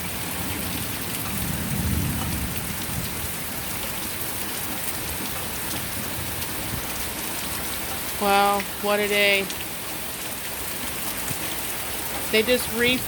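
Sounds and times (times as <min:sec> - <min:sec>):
distant thunder rumble: 0:00.0 - 0:05.2
heavy rain: 0:00.0 - 0:13.0.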